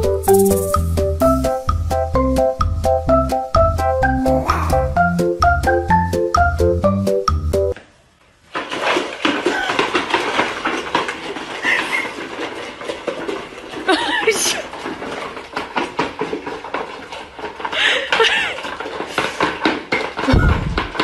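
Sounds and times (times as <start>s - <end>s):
puppies crunching kibble: 8.6s - 21.0s
plastic bowls knocking: 18.1s - 21.0s.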